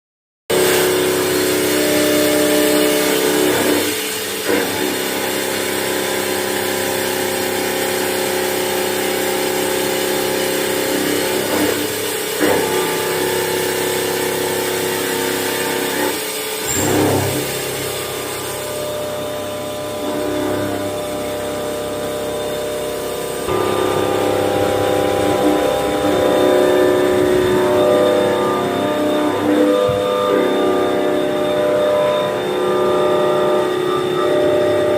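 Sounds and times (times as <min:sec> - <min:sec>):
machine humming: 0:00.5 - 0:34.9
deeper hum: 0:16.7 - 0:34.9.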